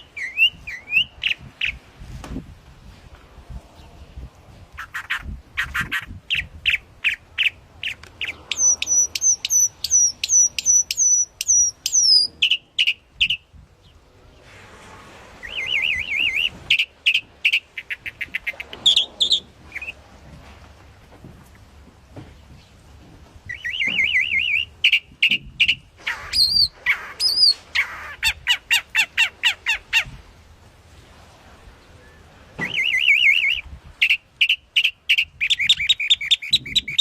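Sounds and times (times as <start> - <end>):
songbird singing whistled notes: 0.0 - 1.8, 6.3 - 13.4, 15.4 - 20.0, 23.5 - 27.6, 32.0 - 37.0.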